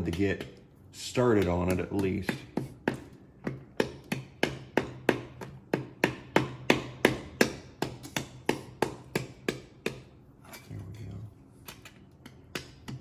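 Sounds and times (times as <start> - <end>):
hand tool tapping metal: 0.0 - 10.1.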